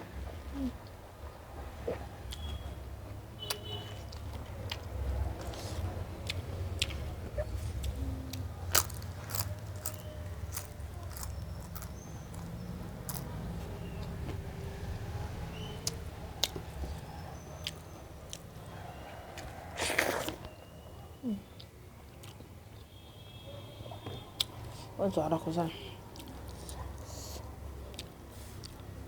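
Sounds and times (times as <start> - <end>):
person chewing food: 3.4 - 14.4, 15.8 - 20.7, 21.6 - 22.8, 26.1 - 29.0.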